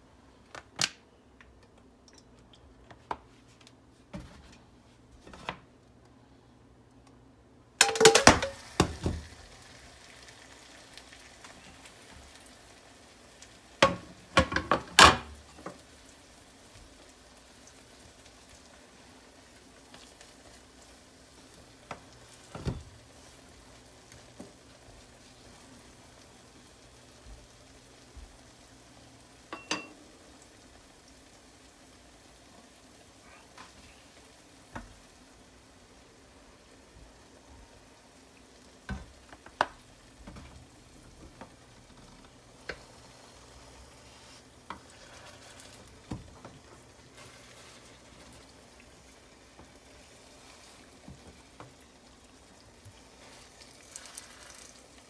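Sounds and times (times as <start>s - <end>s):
utensil clattering against pan: 7.8s - 8.6s
pancake sizzling in oil: 7.8s - 55.0s.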